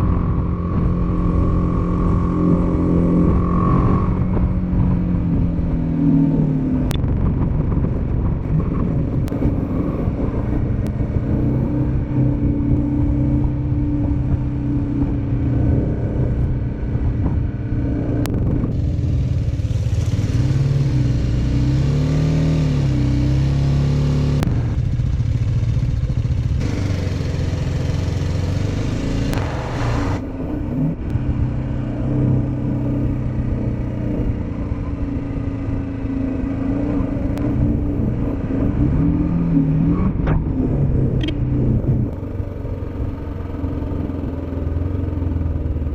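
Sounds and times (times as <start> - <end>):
motorcycle engine running: 0.0 - 45.9
rushing noise: 26.6 - 31.1.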